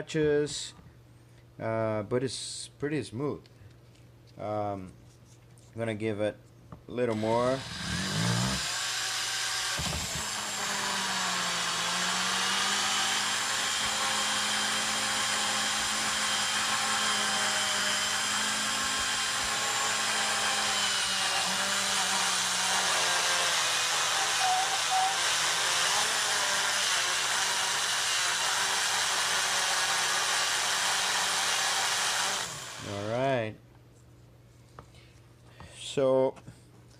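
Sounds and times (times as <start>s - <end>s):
small power tool motor running: 7.1s - 33.0s.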